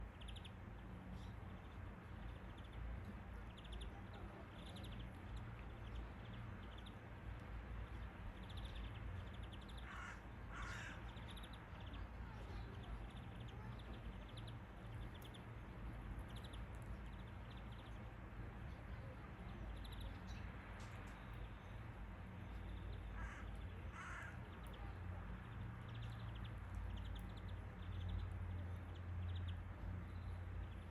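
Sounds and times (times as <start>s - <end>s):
harsh bird calls: 9.5s - 11.9s, 23.1s - 24.8s.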